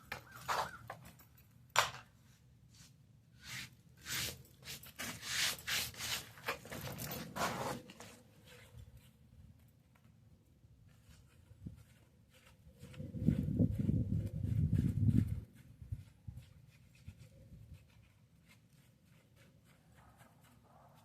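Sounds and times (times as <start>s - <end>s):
scraping on tile: 3.4s - 8.8s.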